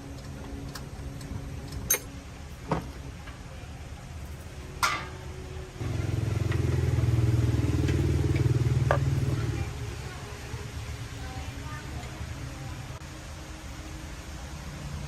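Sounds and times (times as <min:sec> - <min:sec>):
low steady hum: 0:00.0 - 0:15.0
sharp metallic clinks: 0:01.9 - 0:02.1.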